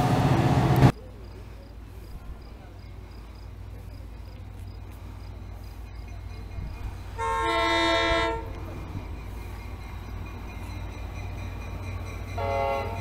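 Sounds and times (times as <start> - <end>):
locomotive horn blast: 7.2 - 8.7, 12.3 - 13.0.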